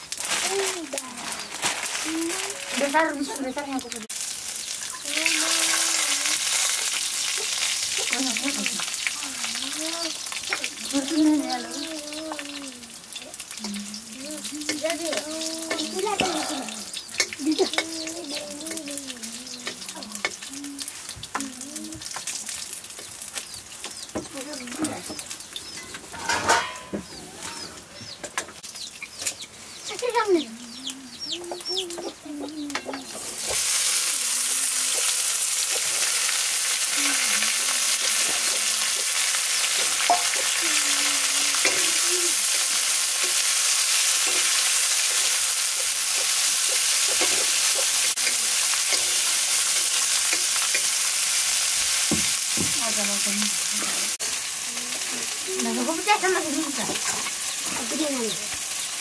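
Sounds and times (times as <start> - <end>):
vegetables sizzling in wok: 0.0 - 59.0
small birds chirping: 0.4 - 26.2, 27.0 - 33.5, 36.9 - 50.9, 52.8 - 59.0
chickens clucking: 13.6 - 21.4, 22.9 - 33.6.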